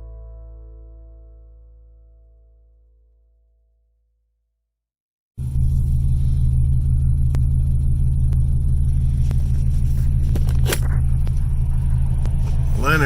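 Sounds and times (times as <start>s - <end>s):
car engine rumble inside cabin: 5.4s - 13.0s
road noise: 5.4s - 13.0s.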